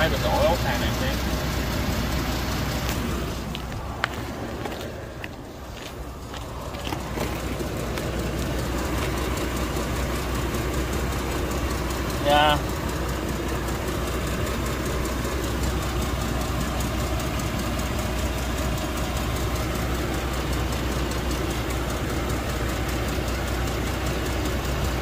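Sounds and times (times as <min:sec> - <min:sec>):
car engine low drone: 0:00.0 - 0:25.0.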